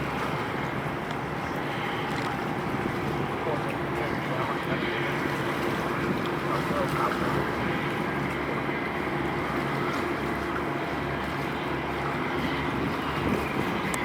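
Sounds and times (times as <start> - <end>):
boat engine humming: 0.0 - 14.0
water noise: 0.0 - 14.0
wind: 0.0 - 14.0.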